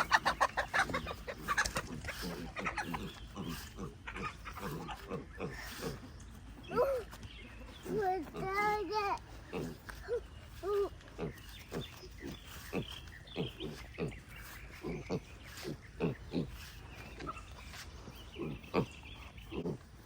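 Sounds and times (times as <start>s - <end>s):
pigs grunting: 0.0s - 20.0s.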